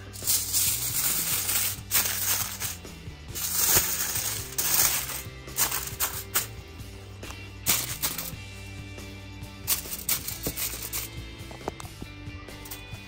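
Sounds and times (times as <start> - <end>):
background music: 0.0 - 13.0
aluminium foil crinkling: 0.2 - 2.8, 3.4 - 6.5, 7.7 - 8.3, 9.7 - 11.1.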